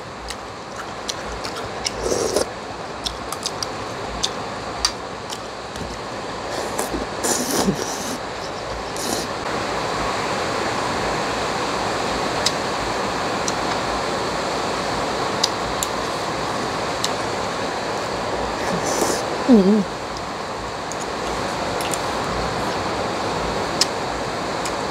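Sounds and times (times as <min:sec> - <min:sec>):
heavy rain pouring: 0:00.0 - 0:24.9
chopsticks clicking: 0:00.3 - 0:06.0
noodle slurping: 0:00.7 - 0:04.3, 0:05.3 - 0:09.4.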